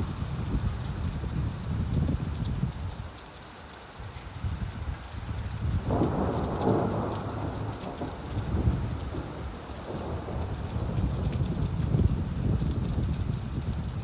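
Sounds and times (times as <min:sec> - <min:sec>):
steady rain: 0:00.0 - 0:14.0
thunder rumbling: 0:05.7 - 0:14.0.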